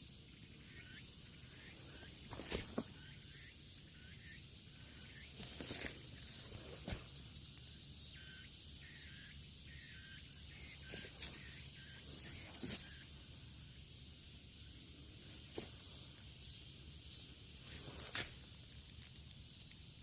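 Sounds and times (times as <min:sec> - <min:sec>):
steady hiss: 0:00.0 - 0:20.0
high chirps: 0:00.3 - 0:15.4
rustles or footsteps: 0:01.8 - 0:03.0, 0:05.4 - 0:07.5, 0:10.9 - 0:13.0, 0:15.2 - 0:16.3, 0:17.6 - 0:19.1.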